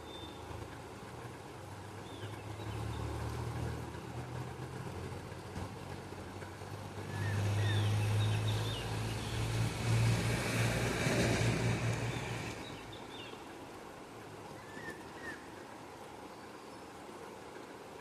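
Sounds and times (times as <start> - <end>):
vehicle engine passing: 1.8 - 12.9.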